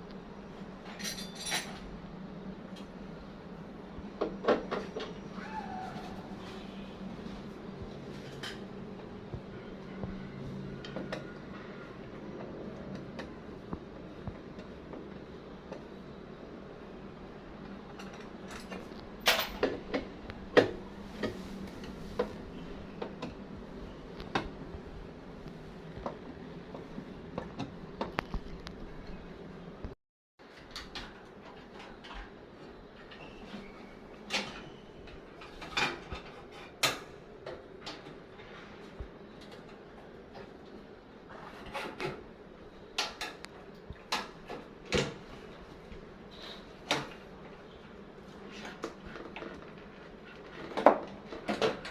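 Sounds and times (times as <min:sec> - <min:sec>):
knocks and clacks of tools handled: 0:00.8 - 0:01.9, 0:17.9 - 0:22.4, 0:34.3 - 0:40.7.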